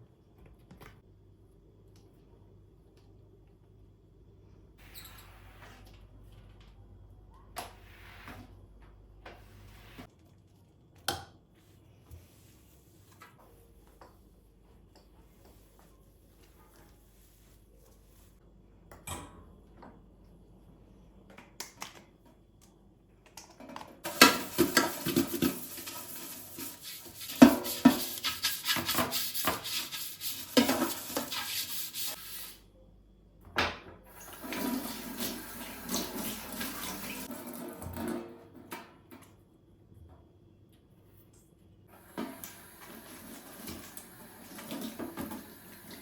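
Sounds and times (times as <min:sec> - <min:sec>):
water running: 0:24.0 - 0:32.6, 0:34.1 - 0:38.0, 0:42.0 - 0:46.0.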